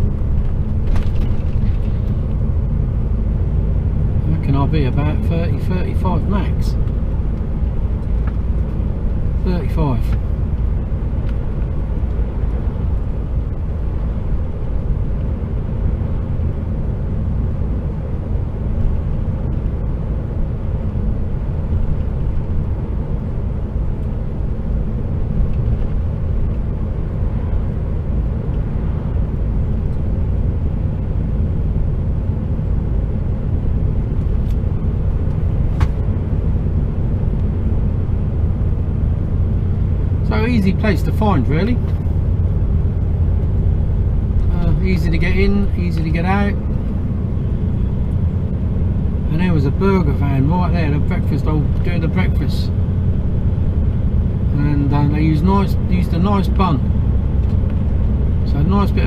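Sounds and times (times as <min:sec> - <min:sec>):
truck cab engine and road rumble: 0:00.0 - 0:59.0.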